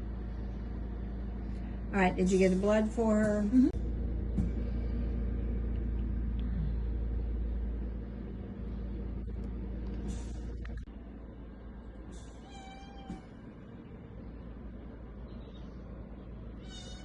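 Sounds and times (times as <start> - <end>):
steady low hum: 0.0 - 17.0
cat meowing: 12.4 - 13.3, 16.6 - 17.0.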